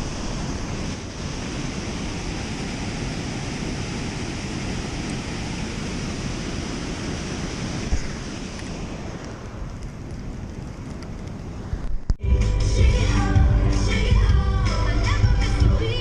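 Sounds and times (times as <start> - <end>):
water rushing through spillway: 0.0 - 9.9.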